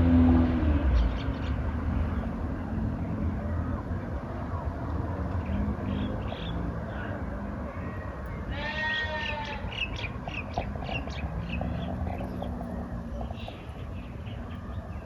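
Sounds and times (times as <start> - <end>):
outdoor background noise: 0.0 - 15.0
bleating animal call: 8.4 - 9.8.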